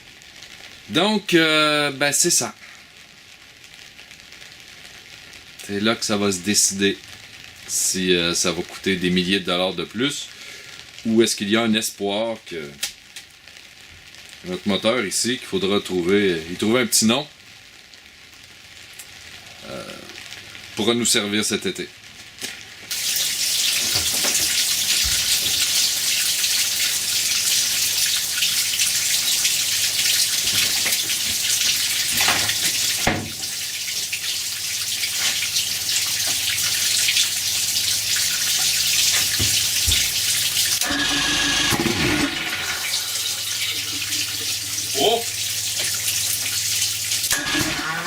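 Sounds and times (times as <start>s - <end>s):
hose water rushing: 22.9s - 48.0s.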